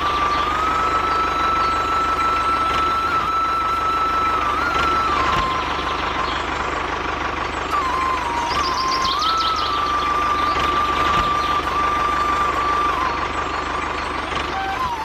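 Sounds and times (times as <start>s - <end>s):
toy motor whining: 14.0s - 15.0s.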